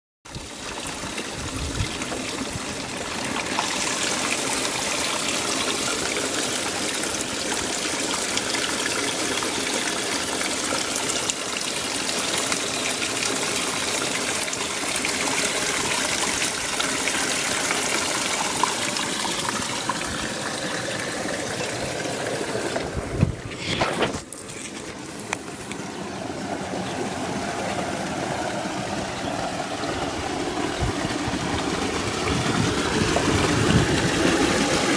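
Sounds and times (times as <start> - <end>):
spring water running: 0.3 - 34.9.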